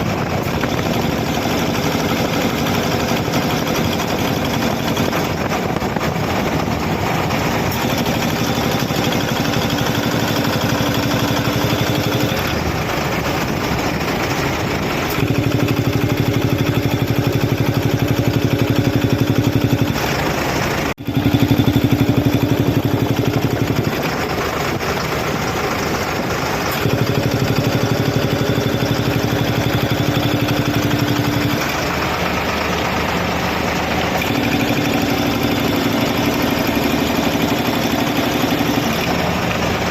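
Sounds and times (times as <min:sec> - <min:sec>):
air compressor engine running: 0:00.0 - 0:39.9.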